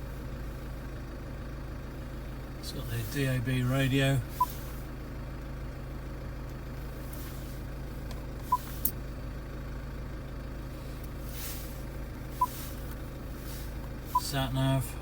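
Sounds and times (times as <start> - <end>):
diesel engine idling: 0.0 - 15.0
short beeps: 8.5 - 8.7, 12.4 - 12.6, 14.1 - 14.4.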